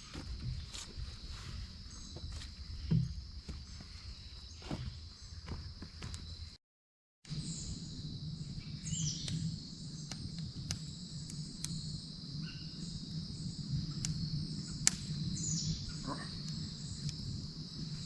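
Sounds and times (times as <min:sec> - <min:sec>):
high-pitched insect chorus: 0:07.3 - 0:18.0
bird chirp: 0:08.6 - 0:10.3.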